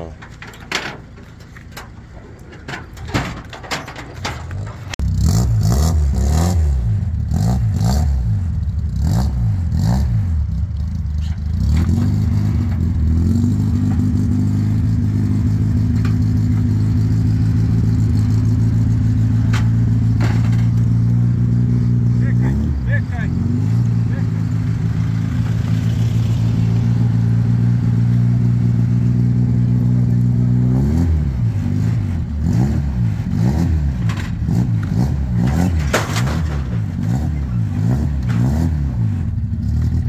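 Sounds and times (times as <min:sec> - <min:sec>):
clicks and knocks: 0:00.2 - 0:05.0
race car engine revving and idling: 0:03.6 - 0:40.0.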